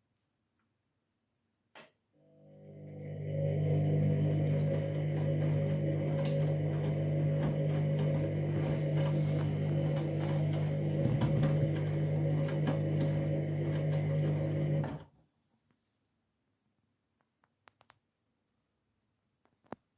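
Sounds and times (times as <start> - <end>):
washing machine running: 2.2 - 15.1.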